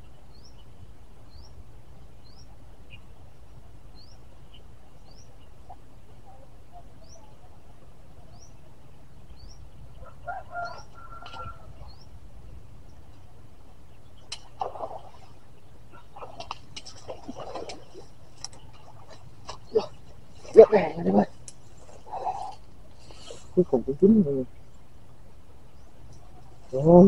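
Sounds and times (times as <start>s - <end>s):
low steady rumble: 0.0s - 27.0s
bird high rising chirp: 8.3s - 13.0s.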